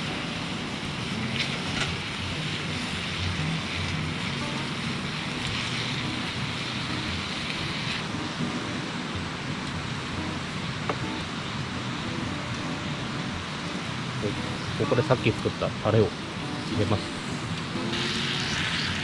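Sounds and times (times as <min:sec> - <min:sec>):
sharp crackles: 0:00.0 - 0:08.4
meat sizzling in a skillet: 0:00.0 - 0:12.2, 0:13.1 - 0:19.0.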